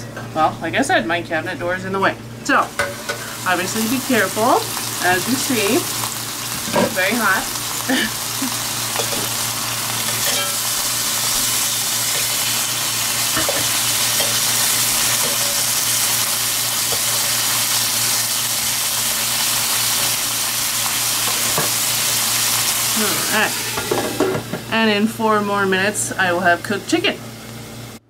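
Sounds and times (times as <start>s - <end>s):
chicken sizzling in hot oil: 2.8s - 24.6s.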